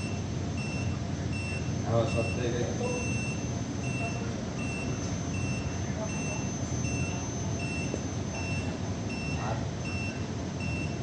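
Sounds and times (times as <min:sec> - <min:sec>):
short high warning beeps: 0:00.0 - 0:11.0.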